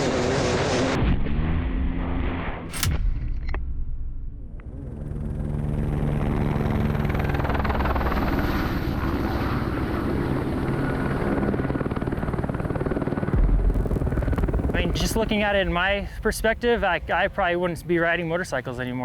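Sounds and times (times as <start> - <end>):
engine drone: 0.0 - 18.7
rushing noise: 13.4 - 18.3.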